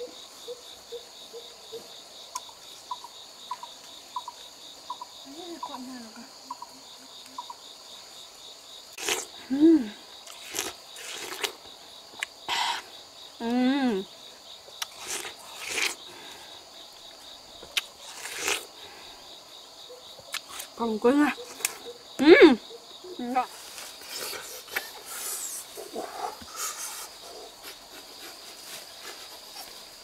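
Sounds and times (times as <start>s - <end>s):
insects chirring: 0.0s - 30.0s
rustles: 23.4s - 30.0s.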